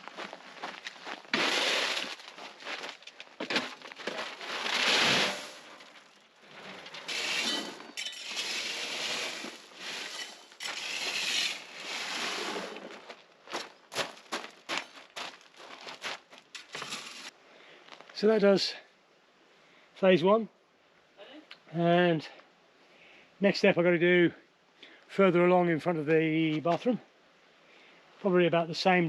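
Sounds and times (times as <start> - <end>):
gravel crunching as spread: 0.0 - 18.2.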